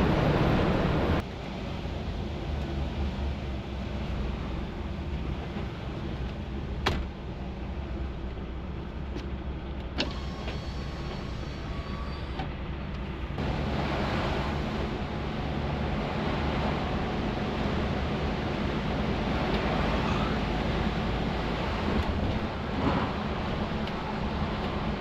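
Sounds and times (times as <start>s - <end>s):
diesel truck engine humming: 0.0s - 25.0s
road or rain hiss: 10.1s - 12.3s, 13.4s - 25.0s.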